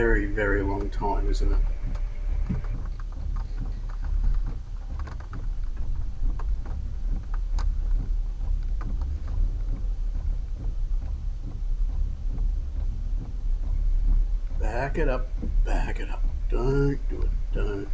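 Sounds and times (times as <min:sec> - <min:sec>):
car cabin low rumble: 0:00.0 - 0:02.8, 0:13.7 - 0:17.9
sharp taps: 0:00.7 - 0:02.8.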